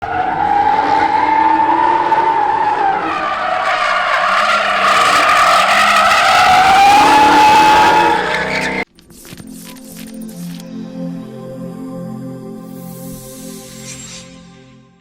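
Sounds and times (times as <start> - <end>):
car tires squealing: 0.0 - 8.8.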